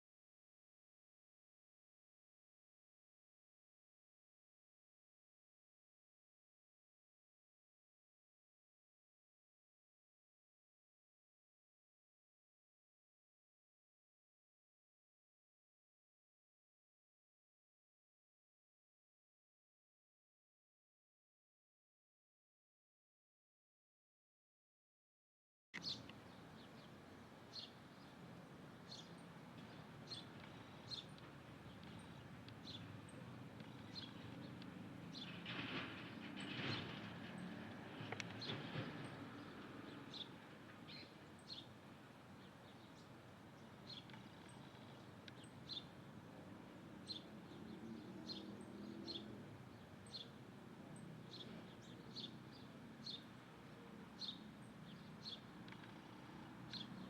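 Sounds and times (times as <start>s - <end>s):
small bird high chirps: 25.8s - 26.9s.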